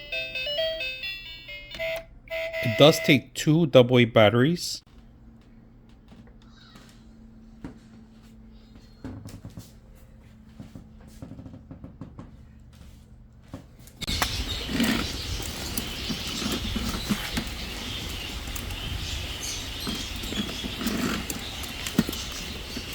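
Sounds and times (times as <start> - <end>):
toy controls clicking: 14.1 - 22.9.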